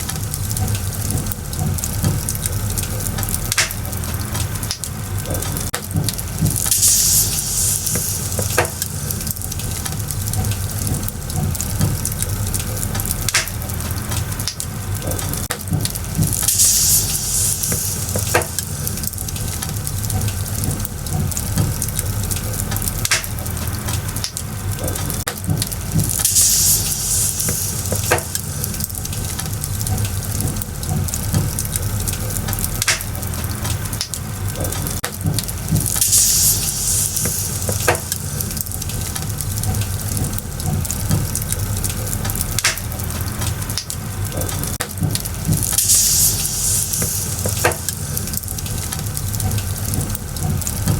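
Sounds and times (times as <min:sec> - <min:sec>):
fire crackling and popping: 0:00.0 - 0:50.9
low fire rumble: 0:00.0 - 0:50.9
high hiss: 0:06.6 - 0:09.5, 0:16.4 - 0:19.2, 0:26.2 - 0:28.8, 0:35.7 - 0:38.6, 0:45.7 - 0:48.3.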